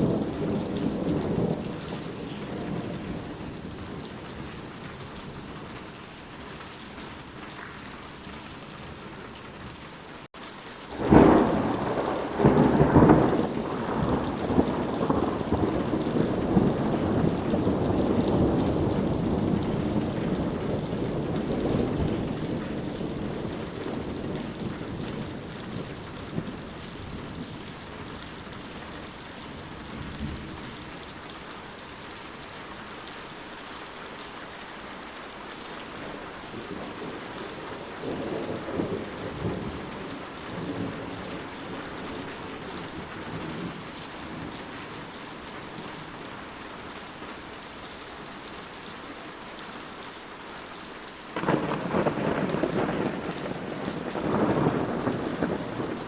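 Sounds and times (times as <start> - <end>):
rolling rumble of thunder: 0.0 - 5.8, 10.9 - 31.2, 35.9 - 46.1, 51.4 - 56.0
steady rainfall: 0.0 - 56.0
thunderclap: 10.9 - 26.5, 36.6 - 44.5, 51.4 - 56.0.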